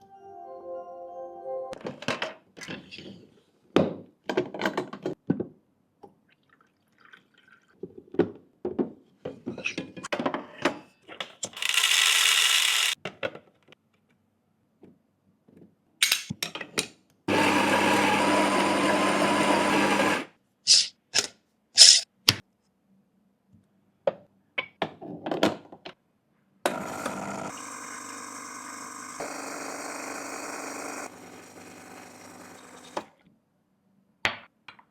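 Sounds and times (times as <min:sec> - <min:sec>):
motor running: 0:11.6 - 0:13.0, 0:26.7 - 0:33.1
espresso machine running: 0:17.3 - 0:20.3, 0:26.7 - 0:33.1.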